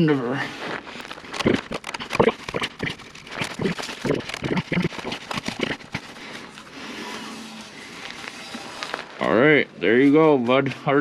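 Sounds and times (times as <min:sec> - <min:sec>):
muffler wrap cracking and tearing: 0:00.8 - 0:06.2, 0:08.1 - 0:09.3.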